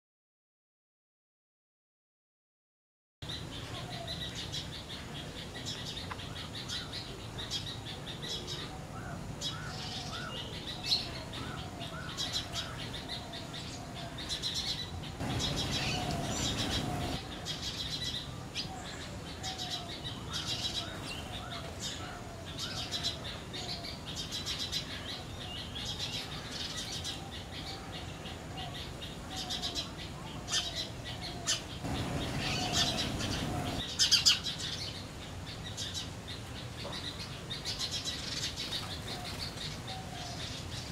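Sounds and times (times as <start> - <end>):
high bird chirps: 15.2 - 17.2, 31.8 - 34.4.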